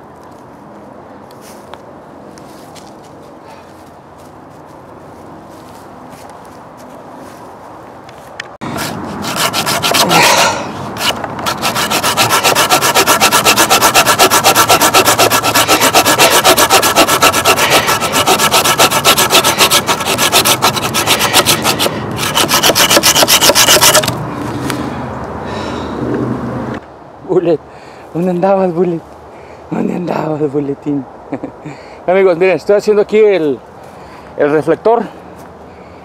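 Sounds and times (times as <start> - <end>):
hand saw cutting wood: 8.6 - 24.2.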